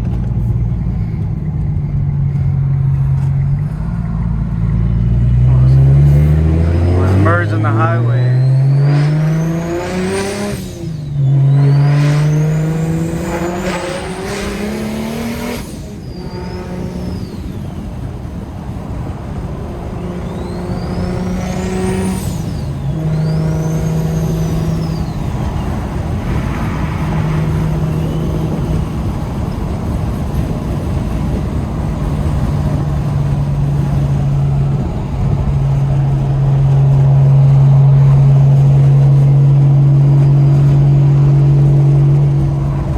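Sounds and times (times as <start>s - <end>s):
car engine accelerating: 0.0s - 42.9s
road noise: 0.0s - 42.9s
turbo whistle: 6.2s - 17.5s, 20.2s - 28.9s.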